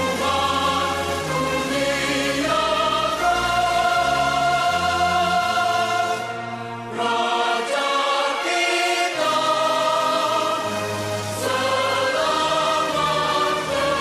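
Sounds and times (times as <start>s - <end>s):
choir singing: 0.0s - 14.0s.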